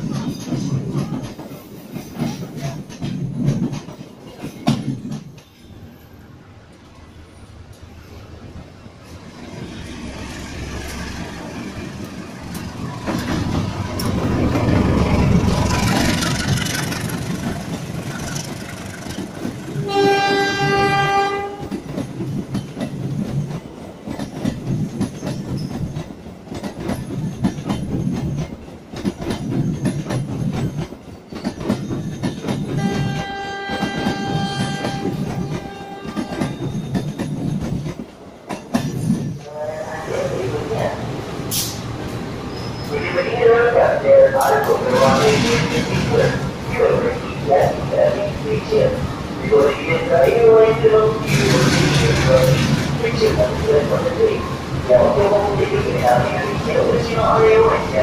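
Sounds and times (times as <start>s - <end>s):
diesel locomotive rumble: 9.8s - 22.0s
wheels clattering over rail joints: 10.7s - 39.5s
train horn blast: 19.8s - 21.8s, 32.8s - 36.5s.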